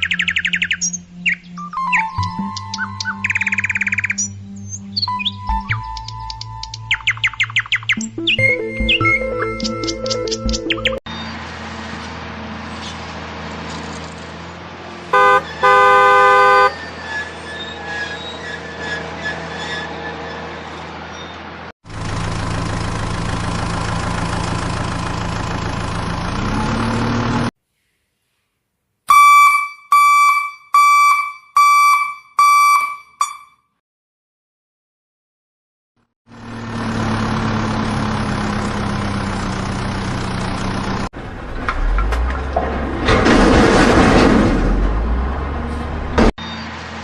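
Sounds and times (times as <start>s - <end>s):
vehicle engine running: 5.8s - 16.8s, 21.8s - 27.5s, 36.3s - 42.6s
short horn honks: 15.1s - 16.8s, 29.1s - 33.6s
vehicle horn blasts: 15.1s - 16.8s, 29.1s - 33.6s.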